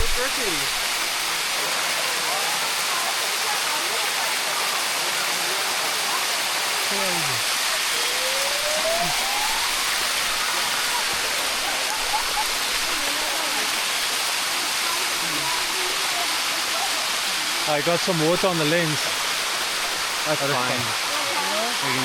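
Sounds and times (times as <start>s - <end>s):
shallow water rushing down cascades: 0.0s - 22.0s.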